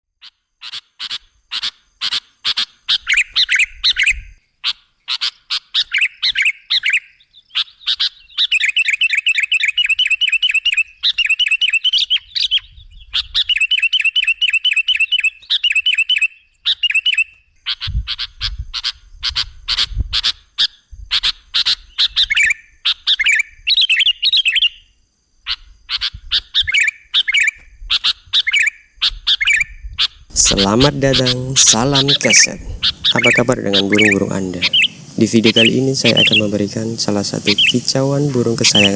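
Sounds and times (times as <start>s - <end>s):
bird chirping: 0.6s - 18.4s, 30.3s - 38.9s.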